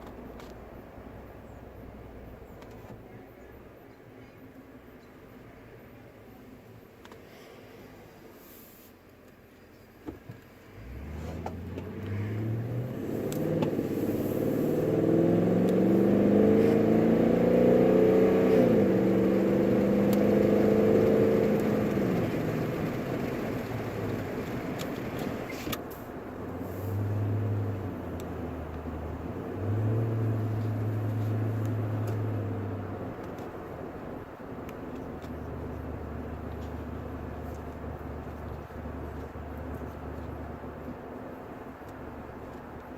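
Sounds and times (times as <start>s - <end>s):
truck engine accelerating through gears: 10.7s - 42.9s.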